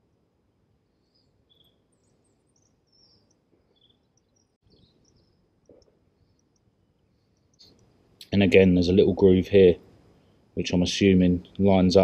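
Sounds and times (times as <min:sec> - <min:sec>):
faint bird chirps: 0:00.0 - 0:08.4, 0:09.7 - 0:10.7.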